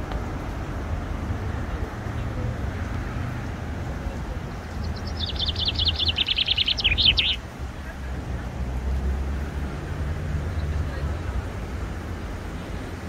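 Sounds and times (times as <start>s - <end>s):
songbird trilling: 4.5s - 7.4s.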